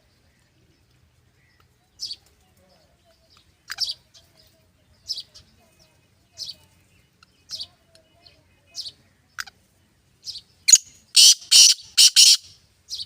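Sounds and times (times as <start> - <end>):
francolin harsh grating call: 10.7 - 12.6.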